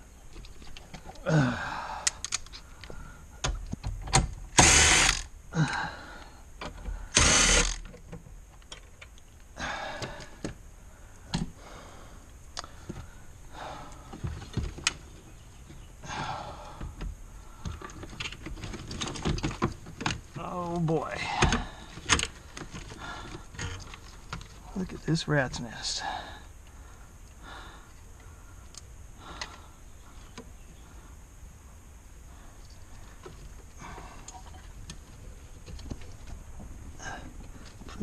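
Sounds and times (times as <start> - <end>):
loud noisy bursts: 4.5 - 5.3, 7.1 - 7.8
ratchet clicks: 7.2 - 7.9.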